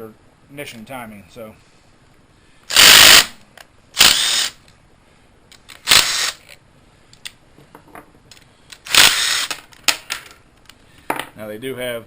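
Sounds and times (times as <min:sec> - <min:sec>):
handheld power tool bursts: 0:02.7 - 0:03.4, 0:04.0 - 0:04.6, 0:05.7 - 0:06.6, 0:08.8 - 0:10.0.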